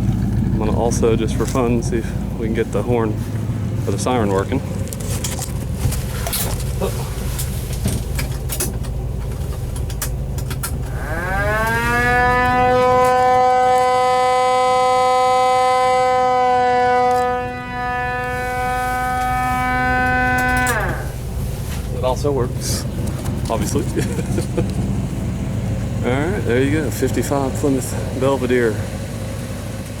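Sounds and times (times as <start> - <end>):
mechanical siren wailing: 10.4 - 23.2.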